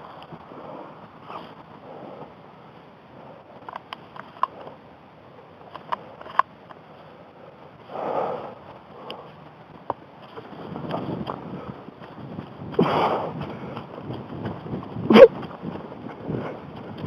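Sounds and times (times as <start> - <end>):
soft rustling: 6.0 - 17.0.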